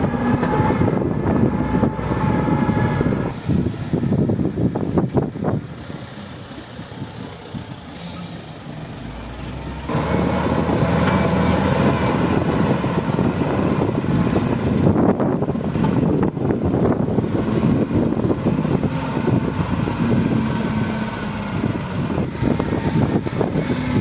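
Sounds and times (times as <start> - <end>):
heavy diesel machinery working: 0.0 - 24.0.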